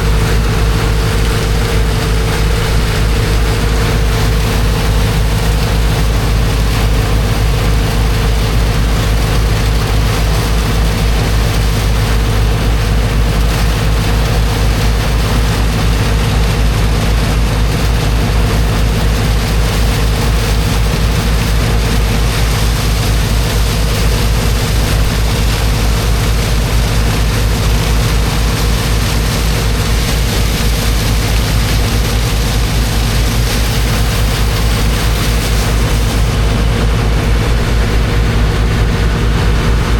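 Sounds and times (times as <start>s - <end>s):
water jet blasting into sand: 0.0s - 39.9s
water pump engine running: 0.0s - 39.9s.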